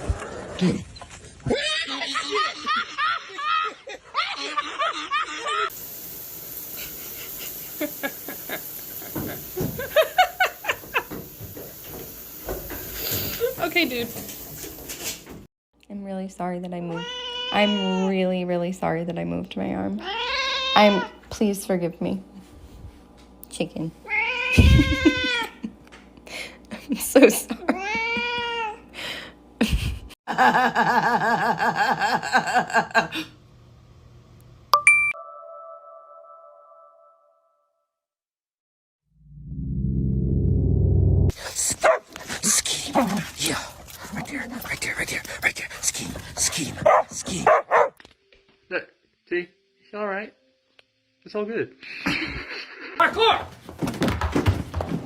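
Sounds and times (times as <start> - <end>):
rapid laughter: 1.5 - 5.7.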